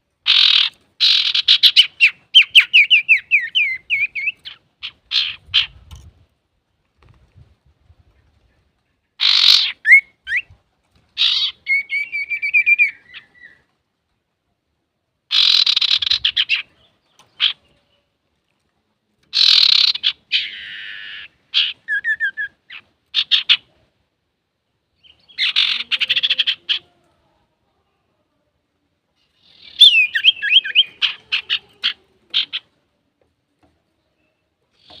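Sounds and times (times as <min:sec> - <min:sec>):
bird singing chatters and trills: 0:00.3 - 0:06.1, 0:08.9 - 0:10.6, 0:11.2 - 0:13.7, 0:15.3 - 0:18.1, 0:19.3 - 0:23.7, 0:25.0 - 0:26.9, 0:29.2 - 0:32.8, 0:33.6 - 0:35.0.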